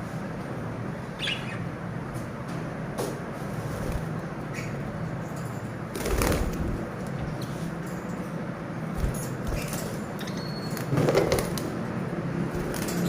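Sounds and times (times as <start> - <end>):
background hum: 0.0 - 13.0
wings fluttering: 5.9 - 7.1, 8.9 - 10.1, 12.5 - 13.0.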